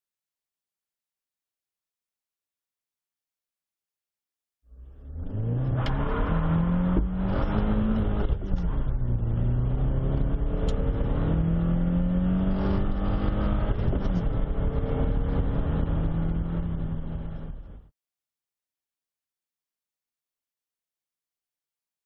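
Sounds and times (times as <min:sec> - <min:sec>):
car engine revving at full throttle: 0:04.8 - 0:17.8.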